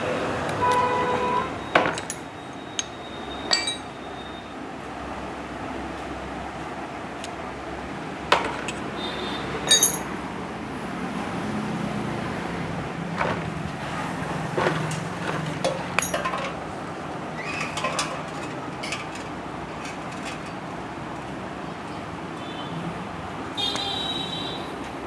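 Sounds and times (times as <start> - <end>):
hand tools clinking on metal: 1.8 - 4.0, 9.6 - 10.2, 15.6 - 16.6.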